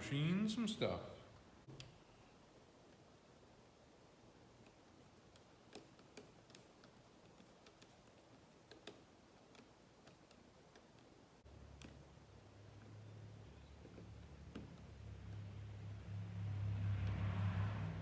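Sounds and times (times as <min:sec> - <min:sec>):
small parts clicking: 0:04.6 - 0:12.9.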